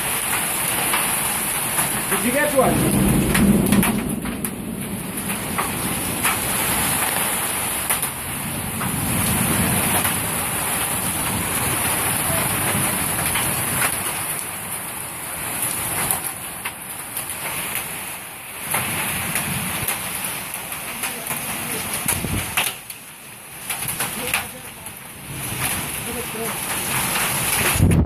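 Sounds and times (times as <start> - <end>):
heavy rain: 0.0 - 28.0
wind rushing: 2.0 - 11.8.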